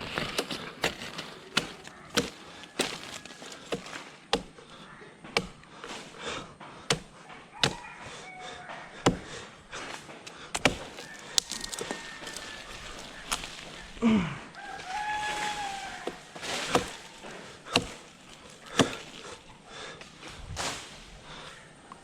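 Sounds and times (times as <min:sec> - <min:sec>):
blade chopping dry wood: 0:00.0 - 0:07.9, 0:08.9 - 0:13.9, 0:14.8 - 0:19.4.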